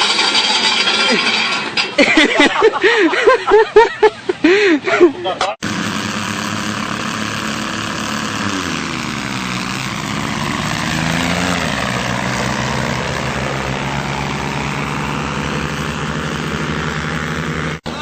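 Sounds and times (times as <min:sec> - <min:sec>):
tractor engine running: 0:05.6 - 0:18.0.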